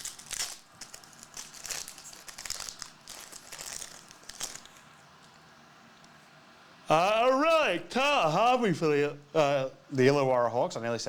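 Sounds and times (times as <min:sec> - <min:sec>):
card packaging crinkling rustles: 0:00.0 - 0:05.4.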